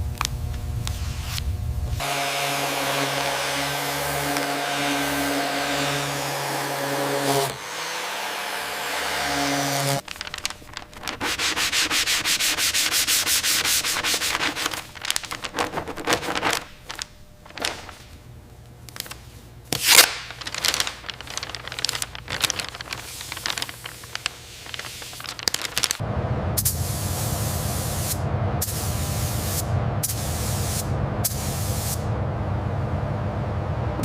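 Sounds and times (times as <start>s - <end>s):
sandpaper rubbing: 9.3s - 17.0s.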